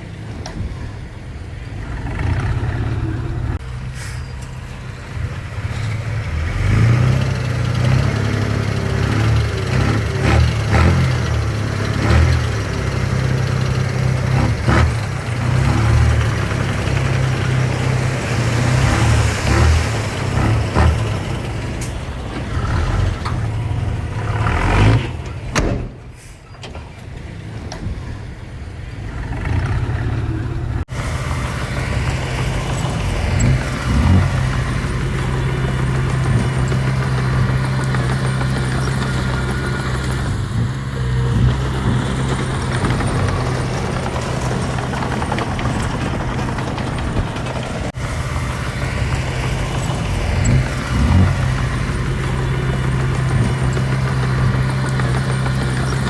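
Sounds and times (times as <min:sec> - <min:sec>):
diesel engine humming: 0:00.0 - 0:56.0.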